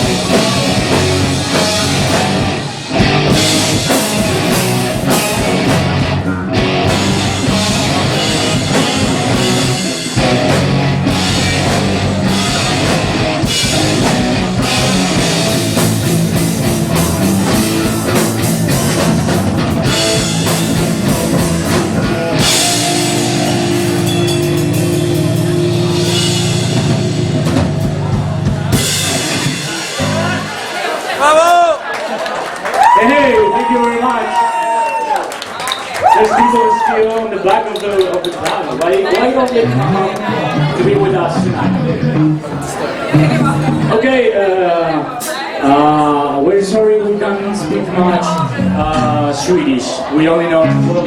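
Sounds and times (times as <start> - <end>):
distorted electric guitars: 0.0 - 31.2, 39.2 - 44.3, 47.4 - 51.0
drum kit: 0.0 - 31.9, 37.6 - 44.2
rock band playing live: 0.0 - 33.6, 34.5 - 51.0.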